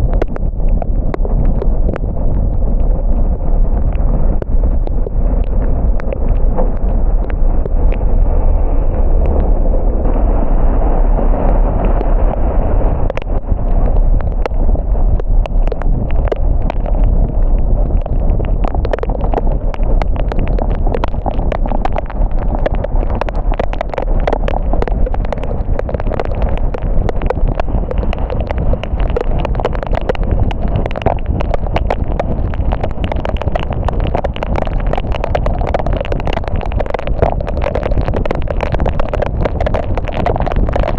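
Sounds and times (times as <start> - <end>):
raindrop taps: 0.0 - 10.2, 11.2 - 40.9
road and tyre rumble: 0.0 - 40.9.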